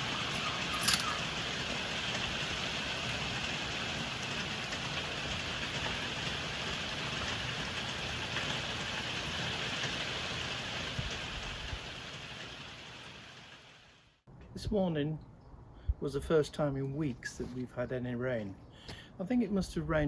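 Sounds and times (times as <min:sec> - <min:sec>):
raindrops tapping surfaces: 0:00.0 - 0:13.9
heavy rain falling: 0:00.0 - 0:14.1.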